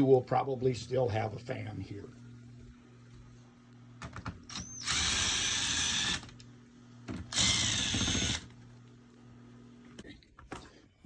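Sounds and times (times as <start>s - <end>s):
cordless drill running: 4.5s - 6.4s, 7.3s - 8.6s.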